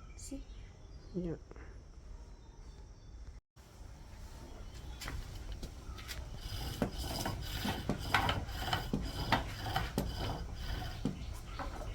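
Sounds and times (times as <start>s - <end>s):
irregular scraping strokes: 5.1s - 11.9s.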